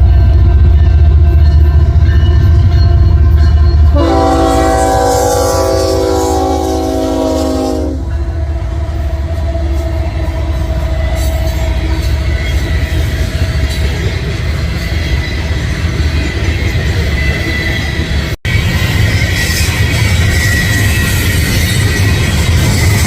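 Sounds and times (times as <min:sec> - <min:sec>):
train rolling by rumble: 0:00.0 - 0:23.0
locomotive horn chord: 0:03.8 - 0:08.4.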